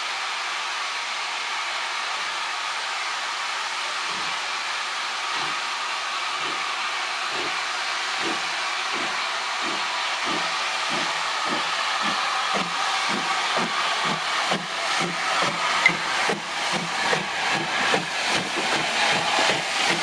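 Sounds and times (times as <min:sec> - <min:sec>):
steam locomotive hissing: 0:00.0 - 0:20.0
locomotive exhaust beats: 0:08.2 - 0:20.0.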